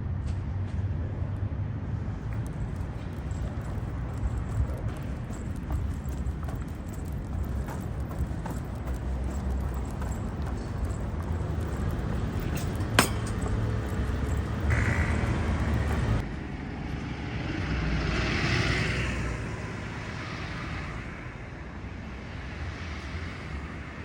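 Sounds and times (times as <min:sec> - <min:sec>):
low street rumble: 0:00.0 - 0:23.9
vehicle passing: 0:02.0 - 0:16.2.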